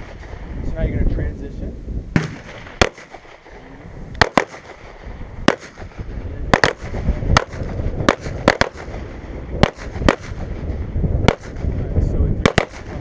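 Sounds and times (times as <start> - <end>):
pistol shots: 2.2 - 3.6, 4.2 - 11.7, 12.4 - 13.0.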